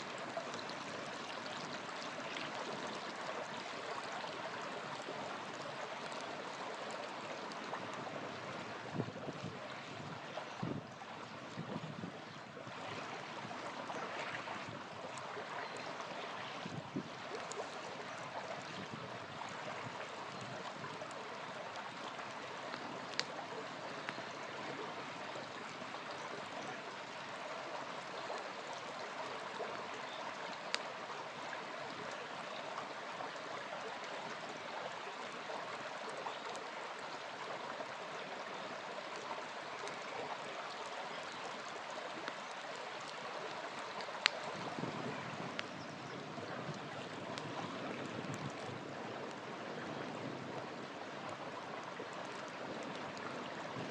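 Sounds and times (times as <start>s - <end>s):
small river flowing: 0.0s - 53.9s
campfire popping: 14.4s - 24.7s, 42.2s - 45.8s.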